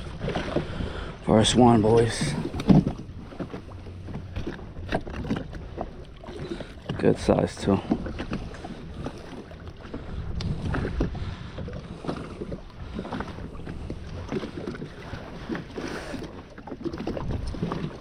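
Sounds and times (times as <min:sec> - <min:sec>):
water slapping against hull: 0:00.0 - 0:18.0
wind on microphone: 0:07.7 - 0:16.3, 0:16.9 - 0:18.0.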